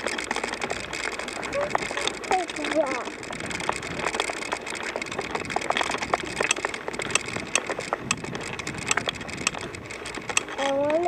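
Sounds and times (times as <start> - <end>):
bicycle clicks and rattles: 0.0 - 11.0
bicycle tyres on dirt trail: 0.0 - 11.0.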